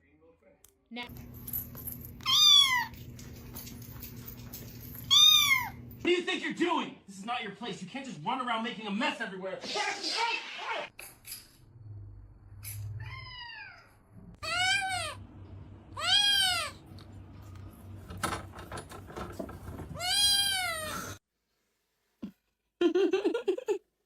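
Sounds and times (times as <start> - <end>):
cat meowing: 2.2 - 3.0, 5.1 - 5.8, 13.0 - 15.2, 16.0 - 16.8, 20.0 - 21.1.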